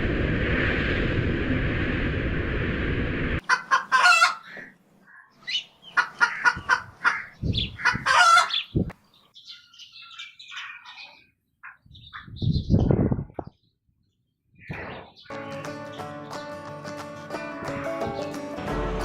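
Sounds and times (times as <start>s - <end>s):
chickens and rooster calling: 3.4s - 10.9s
small birds chirping: 4.4s - 16.5s.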